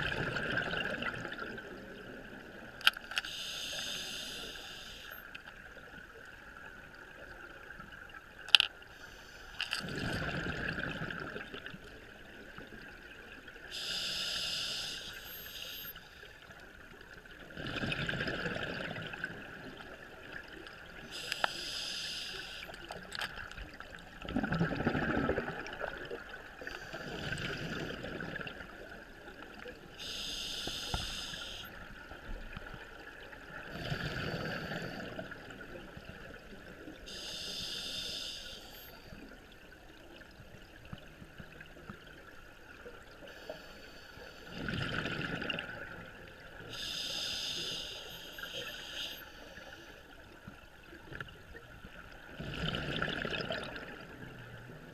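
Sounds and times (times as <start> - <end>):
exhaled bubbles rumbling: 0.0 - 2.6, 9.8 - 13.0, 17.4 - 21.0, 23.8 - 29.0, 44.5 - 46.6, 52.2 - 54.7
hissing regulator inhalation: 3.2 - 5.2, 13.7 - 16.2, 21.1 - 22.8, 30.0 - 31.8, 37.1 - 39.0, 46.7 - 49.6.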